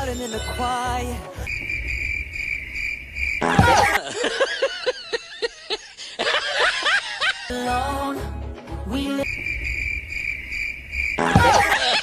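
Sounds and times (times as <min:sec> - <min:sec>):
cricket chirping: 0:01.4 - 0:04.0, 0:09.2 - 0:12.0.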